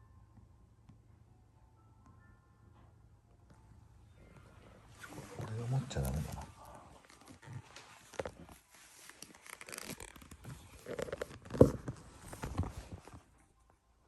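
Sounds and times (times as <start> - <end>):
rustling and clicks of handling: 4.3 - 13.5.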